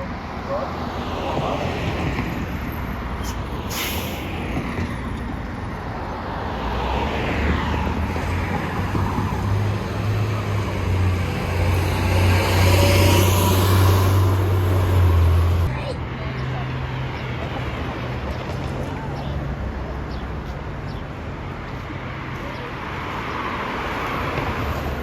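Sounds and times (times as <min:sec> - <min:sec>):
vehicle humming: 0:08.0 - 0:16.0.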